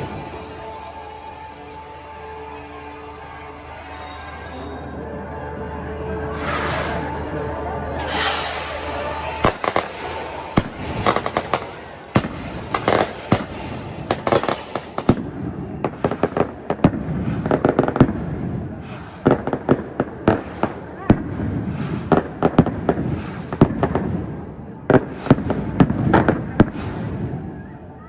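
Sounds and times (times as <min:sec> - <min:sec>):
firecrackers banging: 0:08.0 - 0:28.0.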